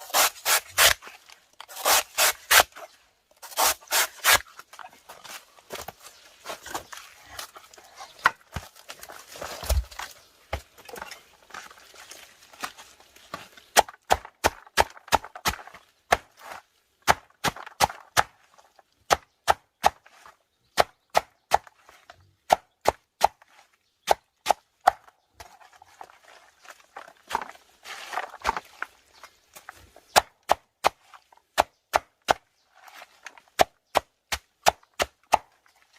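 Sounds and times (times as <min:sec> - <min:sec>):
wood scraping: 0:25.4 - 0:30.2.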